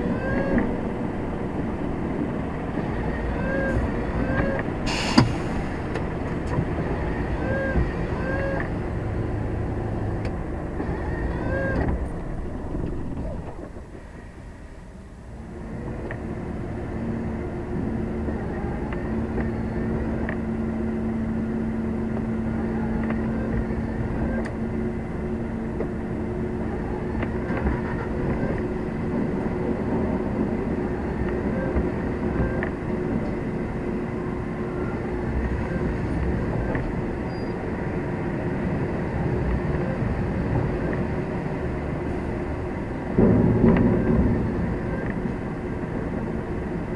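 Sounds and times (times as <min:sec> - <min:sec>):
road noise: 0:00.0 - 0:46.9
truck diesel engine running: 0:00.0 - 0:46.9.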